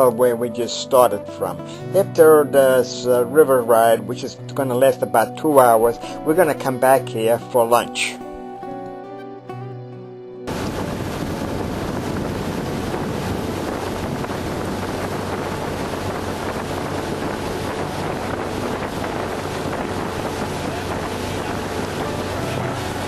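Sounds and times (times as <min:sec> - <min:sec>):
motorboat engine drone: 0:10.5 - 0:23.0
water rushing past hull: 0:10.5 - 0:23.0
wind buffeting microphone: 0:10.5 - 0:23.0.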